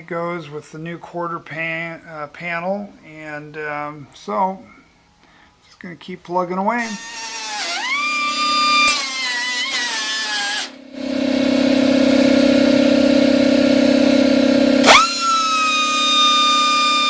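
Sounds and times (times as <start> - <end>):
power tool motor whining: 6.8 - 17.0
low hum: 10.7 - 17.0.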